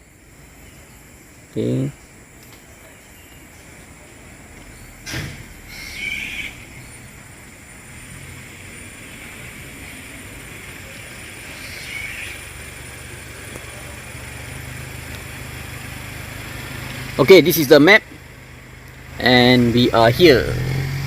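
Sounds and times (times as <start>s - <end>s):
vehicle engine hum: 0.0s - 21.0s.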